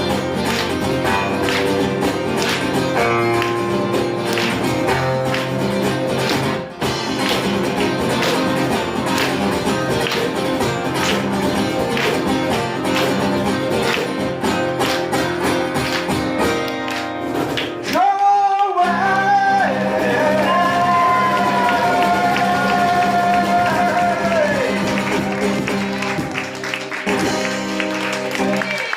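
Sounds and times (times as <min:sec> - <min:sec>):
live band playing: 0:00.0 - 0:28.9
strummed guitar: 0:00.0 - 0:28.9
person singing: 0:17.8 - 0:25.4.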